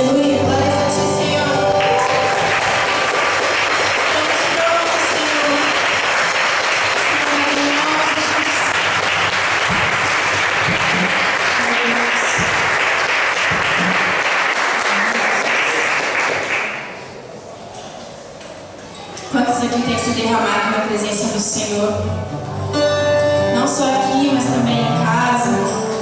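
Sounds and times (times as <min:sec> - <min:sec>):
worship band music and singing: 0:00.0 - 0:05.7
congregation clapping: 0:01.6 - 0:17.2.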